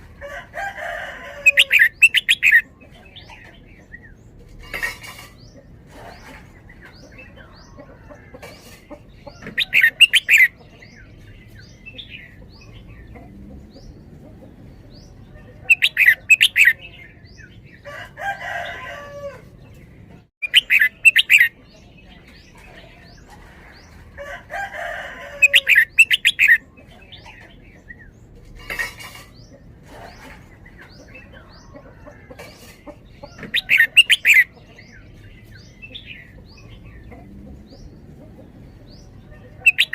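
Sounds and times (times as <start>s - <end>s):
bird singing repeated notes: 1.5s - 2.7s, 9.4s - 10.7s, 15.6s - 17.2s, 20.4s - 21.6s, 25.4s - 26.7s, 33.3s - 34.7s, 39.7s - 39.9s.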